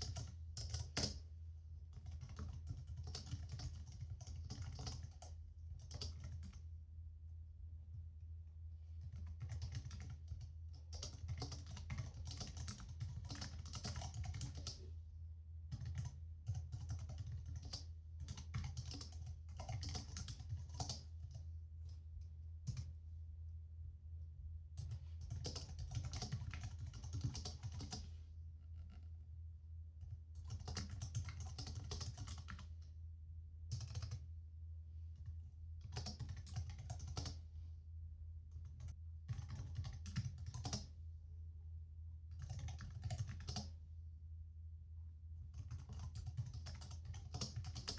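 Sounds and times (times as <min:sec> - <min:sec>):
computer keyboard typing: 0:00.0 - 0:01.2, 0:01.9 - 0:06.6, 0:09.0 - 0:14.9, 0:15.7 - 0:21.4, 0:24.8 - 0:28.1, 0:30.0 - 0:32.7, 0:33.7 - 0:34.2, 0:35.2 - 0:37.4, 0:38.6 - 0:41.0, 0:42.3 - 0:43.8, 0:45.5 - 0:47.9
steady low hum: 0:00.0 - 0:47.9.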